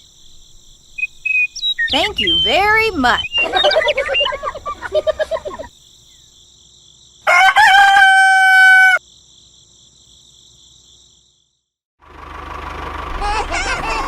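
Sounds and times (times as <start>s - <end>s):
rooster crowing: 7.2s - 9.0s.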